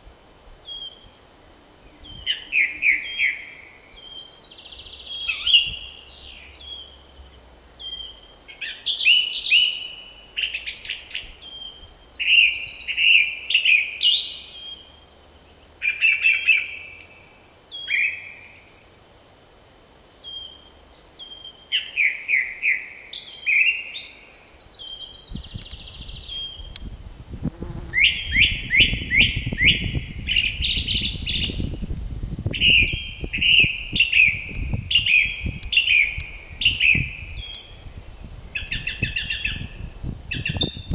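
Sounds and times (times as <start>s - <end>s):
songbirds singing: 0.0s - 40.9s
wind buffeting microphone: 1.8s - 2.6s, 4.7s - 6.0s, 25.2s - 40.9s.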